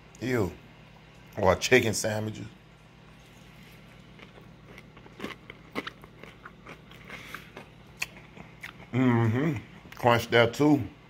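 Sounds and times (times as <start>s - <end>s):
crunching crispy fried chicken: 3.1s - 8.9s.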